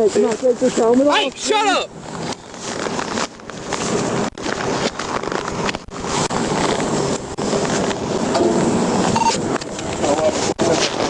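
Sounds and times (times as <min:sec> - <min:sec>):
highway traffic noise: 0:00.0 - 0:11.0.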